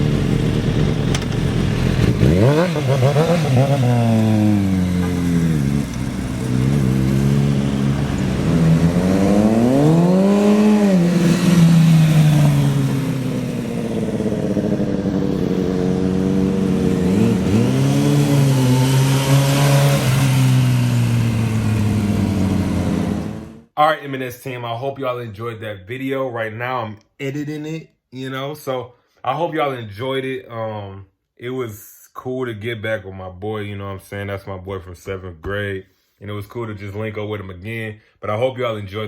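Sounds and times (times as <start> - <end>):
motorcycle engine accelerating: 0.0 - 23.7.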